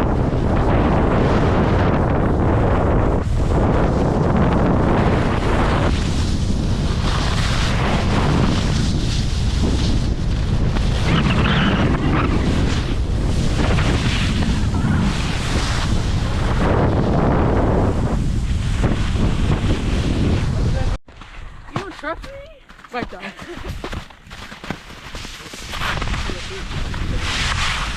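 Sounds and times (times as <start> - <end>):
wind buffeting microphone: 0.0 - 22.6, 25.0 - 27.9.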